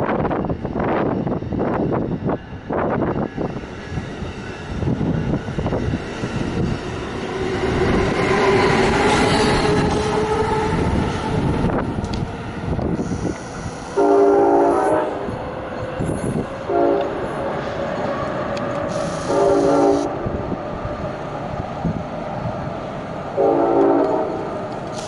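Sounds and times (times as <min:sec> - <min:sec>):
wind rumble on microphone: 0:00.0 - 0:19.3, 0:19.9 - 0:23.3
train passing: 0:00.0 - 0:25.0
locomotive horn blasts: 0:14.0 - 0:15.2, 0:16.7 - 0:17.2, 0:19.0 - 0:20.1, 0:23.4 - 0:24.5.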